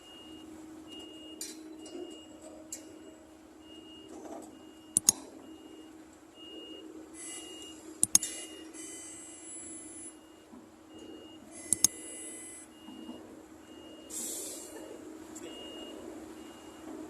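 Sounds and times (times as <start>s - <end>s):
short electronic beeps: 3.7s - 13.1s
sharp clicks: 5.0s - 5.2s, 8.0s - 8.4s, 11.7s - 12.0s.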